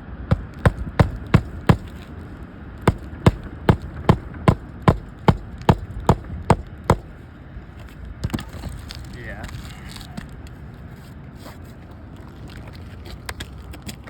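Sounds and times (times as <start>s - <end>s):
hammer striking shingle roof: 0.3s - 2.2s, 2.8s - 7.2s.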